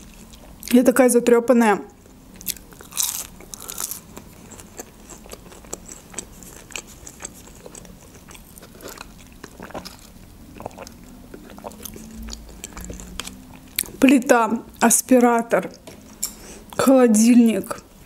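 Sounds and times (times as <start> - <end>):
soft chewing with mouth clicks: 2.0 - 14.0, 15.6 - 16.9
biting crispy food: 2.4 - 14.0.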